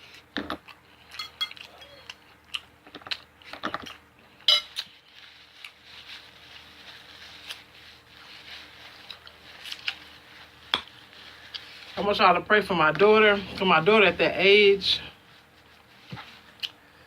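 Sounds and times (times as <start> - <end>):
person chewing: 0.0 - 5.8, 8.9 - 11.8, 16.5 - 16.8.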